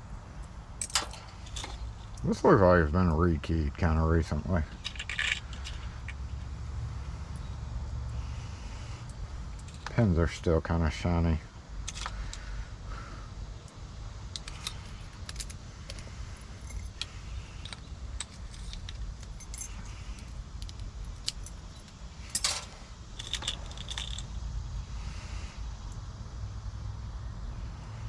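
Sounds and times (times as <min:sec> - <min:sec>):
steady low hum: 0:00.0 - 0:28.0
metal lock pins clicking: 0:00.8 - 0:02.2, 0:04.7 - 0:06.2, 0:14.3 - 0:24.3
tools clattering: 0:00.8 - 0:02.2, 0:04.7 - 0:06.5, 0:11.8 - 0:12.4, 0:14.3 - 0:24.3.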